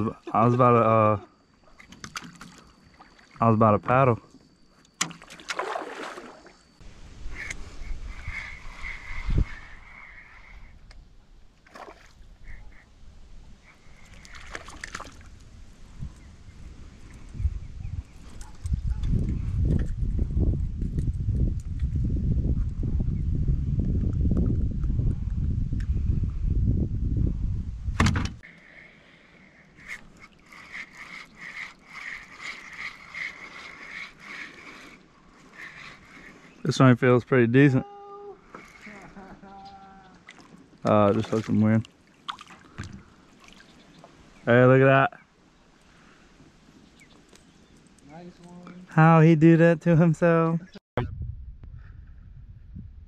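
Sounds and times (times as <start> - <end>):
water and handling noise: 1.7 - 6.8, 13.9 - 15.5, 29.7 - 36.8, 38.4 - 44.4
fishing reel whirring: 6.7 - 10.9, 29.4 - 36.7, 38.4 - 39.6.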